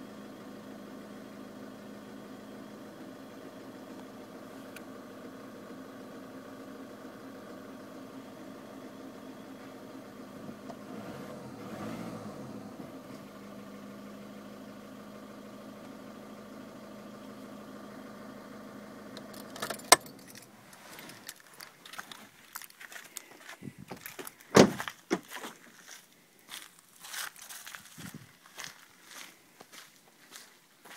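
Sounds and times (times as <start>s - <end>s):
diesel engine idling: 0.0s - 27.0s
engine switch click: 19.1s - 20.4s
keys jangling: 19.3s - 22.8s
car door thud: 24.5s - 25.2s.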